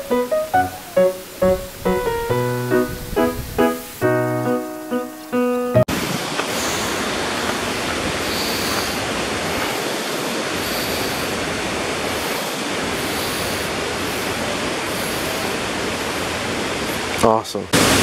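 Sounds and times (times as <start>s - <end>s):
piano music: 0.0s - 5.9s
rushing stream water: 0.0s - 18.0s.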